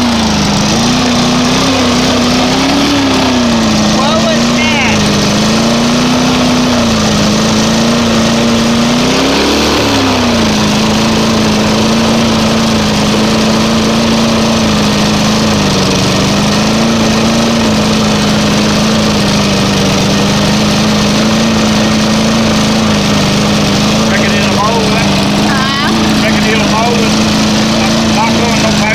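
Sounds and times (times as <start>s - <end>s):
lawn mower engine running: 0.0s - 28.9s.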